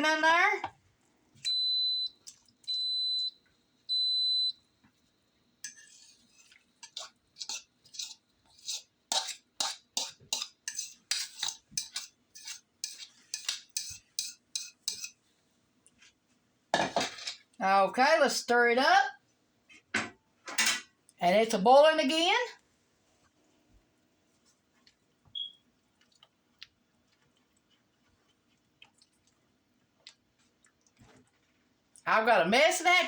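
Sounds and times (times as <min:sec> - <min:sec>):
utensil scraping metal pot: 0:05.6 - 0:15.2.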